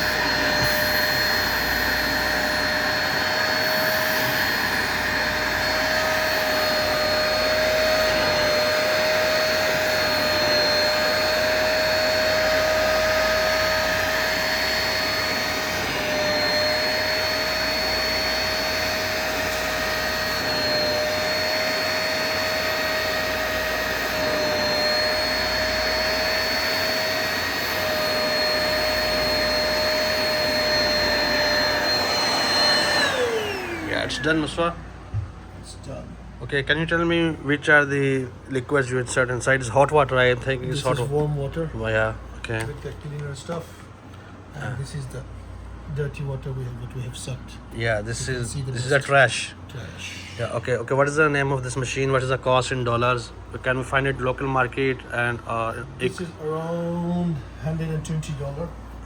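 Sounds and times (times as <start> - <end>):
motor winding down: 0.0 - 34.8
carpet cleaner suction motor whine: 0.0 - 35.9.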